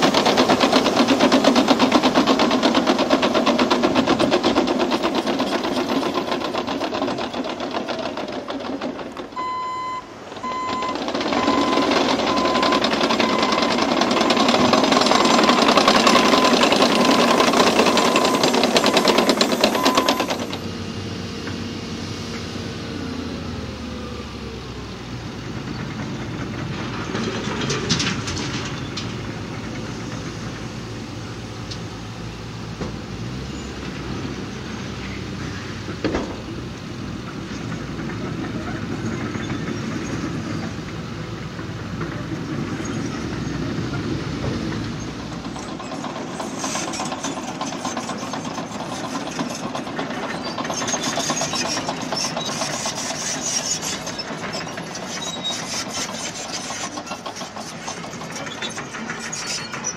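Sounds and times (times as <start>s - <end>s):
steel tracks clattering: 0.0s - 20.7s, 24.9s - 59.9s
diesel engine running: 0.0s - 59.9s
reversing alarm beeping: 9.4s - 13.8s, 15.0s - 20.6s.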